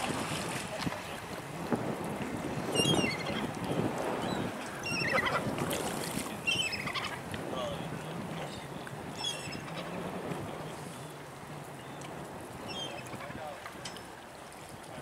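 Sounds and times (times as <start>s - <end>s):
choppy water: 0.0s - 15.0s
wind: 0.0s - 15.0s
birds chirping: 4.2s - 5.4s, 6.3s - 7.7s, 8.8s - 10.1s, 10.9s - 14.0s.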